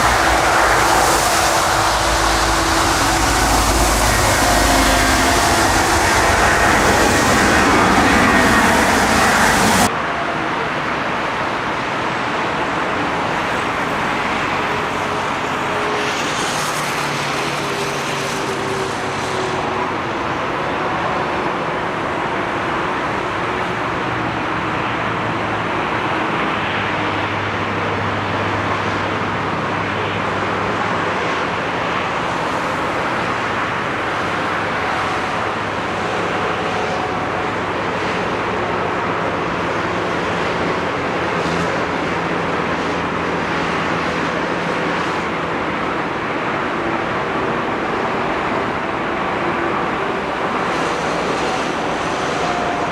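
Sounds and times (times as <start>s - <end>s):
airliner roar: 0.0s - 52.9s.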